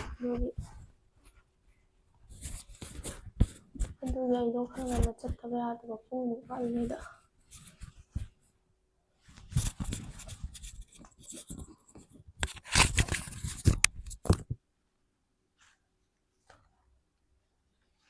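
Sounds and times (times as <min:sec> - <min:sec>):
rustling and crinkling handling noises: 0:00.0 - 0:05.7, 0:06.4 - 0:08.6, 0:09.2 - 0:14.6.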